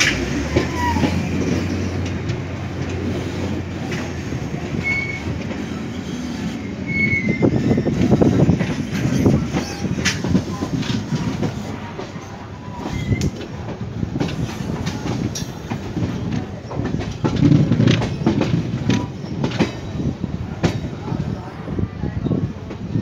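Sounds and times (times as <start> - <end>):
train wheel squeals: 0.0 - 2.0, 3.1 - 13.5, 14.2 - 22.4
train rumbling on rails: 0.0 - 23.0.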